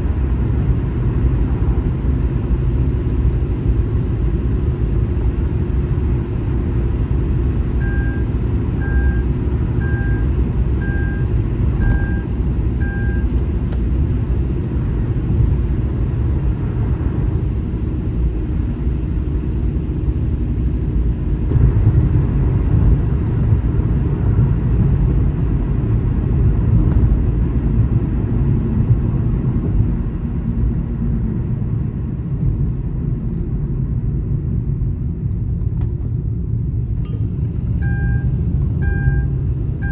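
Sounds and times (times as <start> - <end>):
short electronic beeps: 7.8 - 13.3, 37.8 - 39.9.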